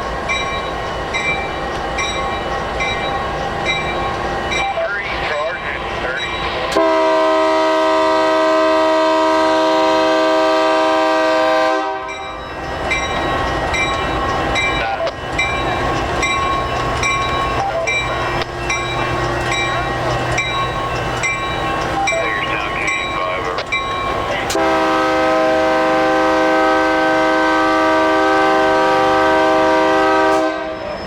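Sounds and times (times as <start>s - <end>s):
train rumbling: 0.0s - 31.0s
locomotive horn: 6.7s - 12.2s, 24.4s - 31.0s.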